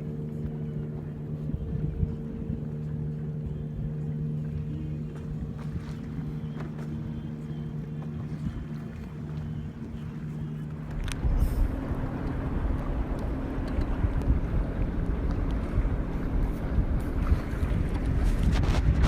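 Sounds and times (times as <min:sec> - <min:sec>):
motorboat engine droning: 0:00.0 - 0:19.0
wind on microphone: 0:00.0 - 0:19.0
rushing water: 0:04.2 - 0:19.0.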